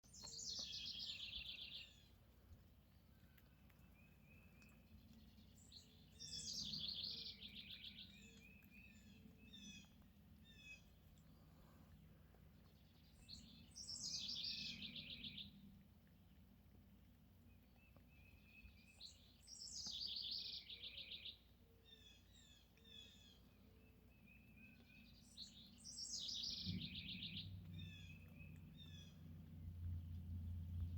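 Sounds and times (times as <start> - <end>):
bird chirps: 0.0 - 2.1, 3.3 - 10.9, 12.7 - 15.6, 17.6 - 29.3
songbird trill: 0.0 - 2.2, 3.0 - 11.4, 12.5 - 15.8, 17.4 - 30.9.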